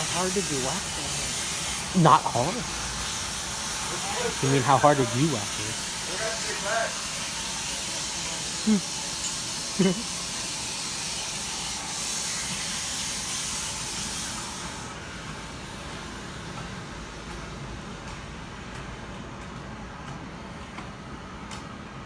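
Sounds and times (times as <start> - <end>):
gas hissing from broken pipe: 0.0 - 15.2.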